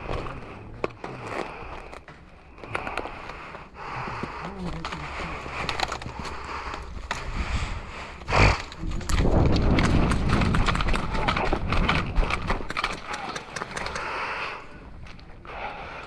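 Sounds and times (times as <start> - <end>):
rapid footsteps on ground: 0.0 - 16.0
wind rumble on microphone: 6.9 - 12.8
gear clattering: 8.2 - 14.7.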